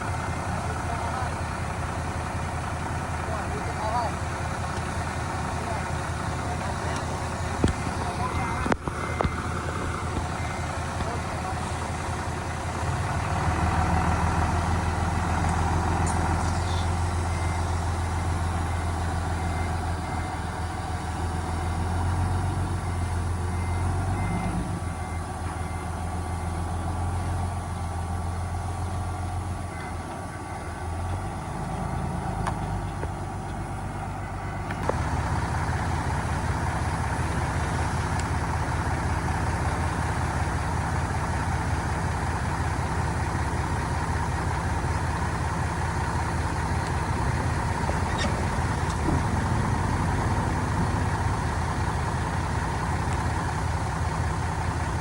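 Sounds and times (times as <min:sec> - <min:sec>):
diesel machinery engine running: 0:00.0 - 0:55.0
faint reversing beeper: 0:06.4 - 0:34.9.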